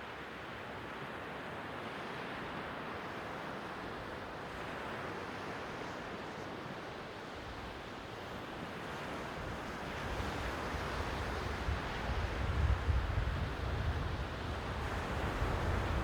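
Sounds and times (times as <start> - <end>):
wind rumble on microphone: 10.0 - 16.0.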